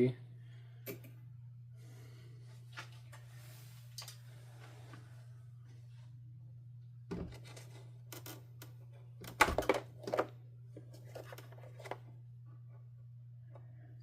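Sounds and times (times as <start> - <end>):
steady low hum: 0.0 - 14.0
clicks and knocks of vacuum parts: 9.2 - 12.0.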